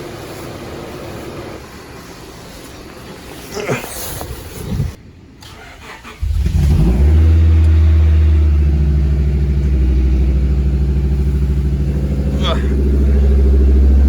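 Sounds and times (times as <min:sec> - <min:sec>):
car engine starting and idling: 0:04.2 - 0:14.0.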